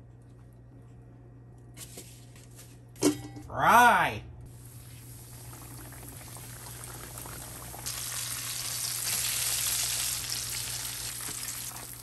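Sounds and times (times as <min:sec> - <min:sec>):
fish frying in hot oil: 0:04.6 - 0:12.0.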